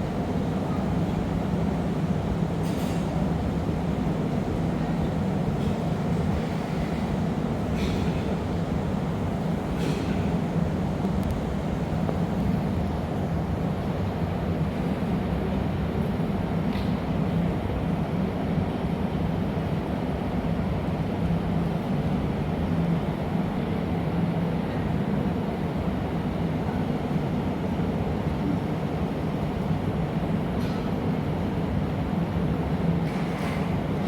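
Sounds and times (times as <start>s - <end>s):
gas furnace burners running: 0.0s - 15.2s.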